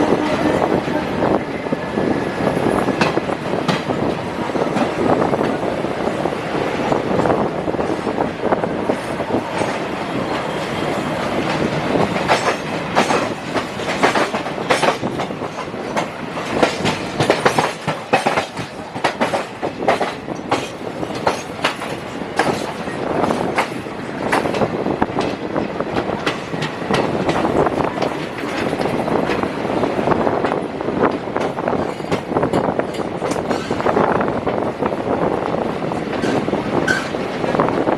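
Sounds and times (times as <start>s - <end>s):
train rumbling along track: 0.0s - 37.9s
wheels clattering over rail joints: 8.8s - 29.5s, 30.4s - 34.6s.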